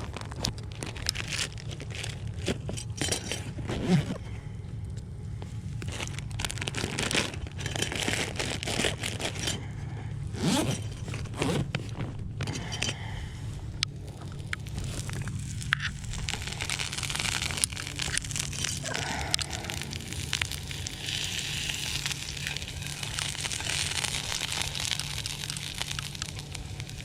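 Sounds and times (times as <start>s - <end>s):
plastic packaging crinkling: 0.0s - 4.3s, 5.5s - 27.0s
low rumble: 0.0s - 27.0s
handling scrapes and knocks: 1.3s - 4.2s, 10.4s - 13.0s.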